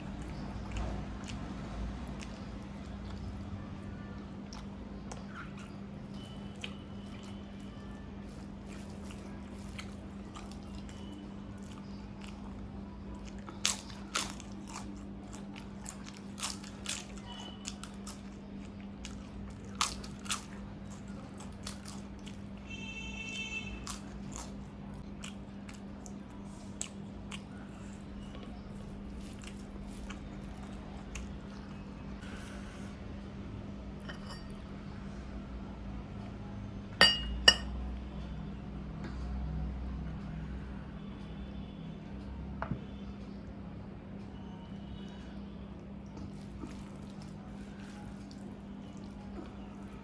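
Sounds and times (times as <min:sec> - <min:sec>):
crisp food being chewed: 0:00.0 - 0:03.6, 0:04.4 - 0:22.6, 0:23.3 - 0:32.2, 0:45.8 - 0:50.0
steady low hum: 0:00.0 - 0:22.7.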